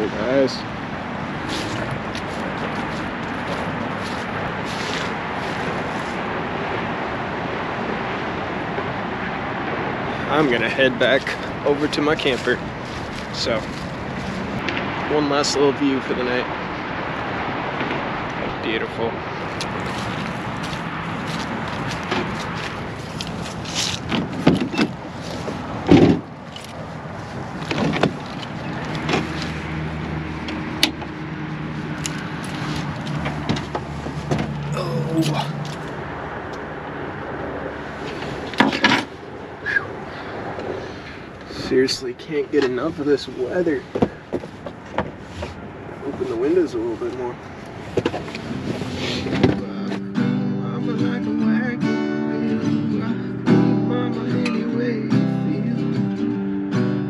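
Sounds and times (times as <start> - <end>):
truck engine running: 0.0 - 15.0, 19.0 - 41.5
acoustic guitar music: 0.0 - 39.8, 47.8 - 57.0
outdoor air noise: 0.0 - 57.0
clicks and rustling in cab: 23.2 - 26.8, 27.6 - 29.6, 32.0 - 34.7, 38.1 - 39.2, 47.8 - 49.6.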